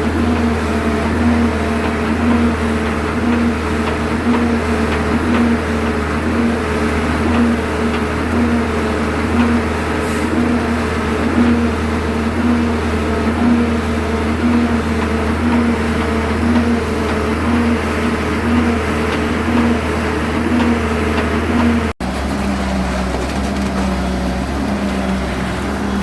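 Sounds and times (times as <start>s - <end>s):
vehicle engine pulsing drone: 0.0s - 26.0s.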